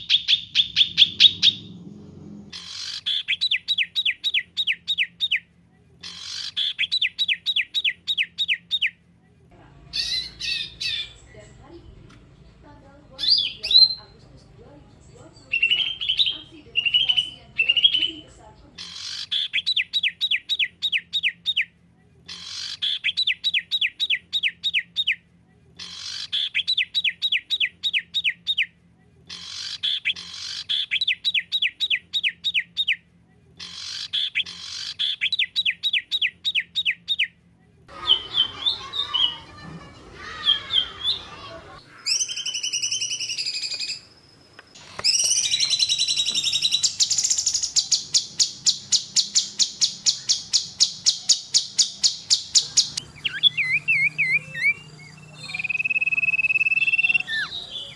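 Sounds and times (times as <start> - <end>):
bird chirps: 0.0 - 5.4, 9.6 - 21.6, 37.9 - 57.9.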